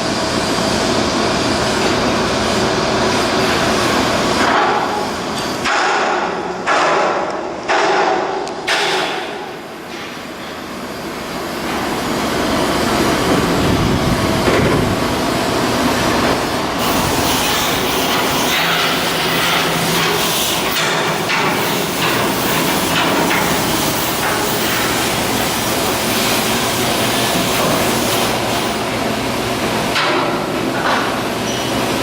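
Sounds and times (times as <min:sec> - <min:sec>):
sharp metallic knocks: 0:05.6 - 0:10.2
machinery running: 0:08.6 - 0:32.0.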